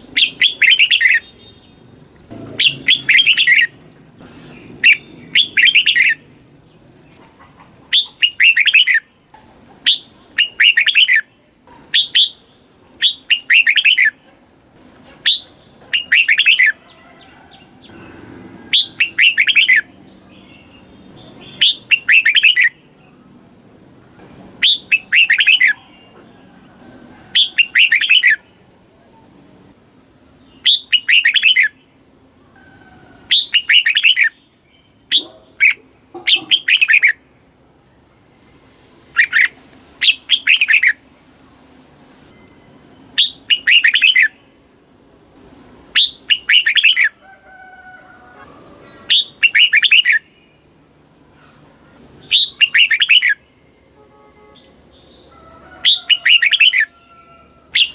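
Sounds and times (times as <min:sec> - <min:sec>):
bulbul singing warbled phrases: 0:00.0 - 0:07.2, 0:07.9 - 0:09.2, 0:09.8 - 0:14.3, 0:15.2 - 0:16.8, 0:17.6 - 0:23.9, 0:24.6 - 0:26.2, 0:27.4 - 0:29.3, 0:30.4 - 0:32.0, 0:33.3 - 0:37.3, 0:39.1 - 0:41.1, 0:42.5 - 0:44.6, 0:45.8 - 0:47.2, 0:48.9 - 0:55.3, 0:55.9 - 0:56.9, 0:57.7 - 0:57.9.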